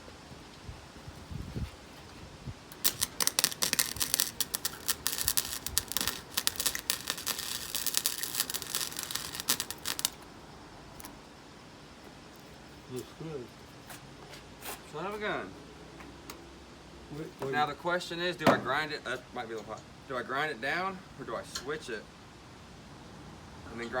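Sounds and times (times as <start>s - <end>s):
welder arc crackling: 2.6s - 11.3s.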